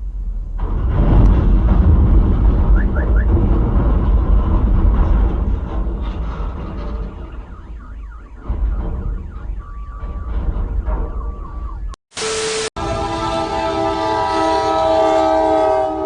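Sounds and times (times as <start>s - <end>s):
low vehicle rumble: 0.0s - 12.0s
warbling alarm-like tone: 6.9s - 12.0s
loud burst of hiss: 12.1s - 12.9s.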